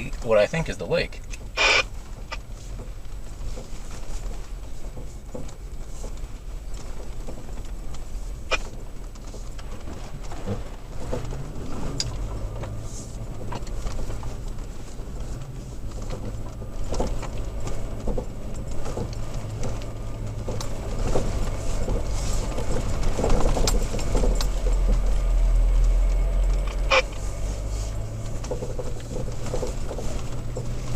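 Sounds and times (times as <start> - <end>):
knocks and rattles over bumps: 0.0 - 30.9
truck engine drone: 8.3 - 30.9.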